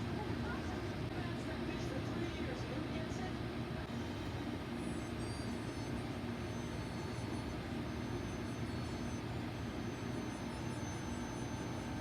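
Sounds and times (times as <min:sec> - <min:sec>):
low background hum: 0:00.0 - 0:12.0
faint high-pitched tones: 0:04.1 - 0:12.0.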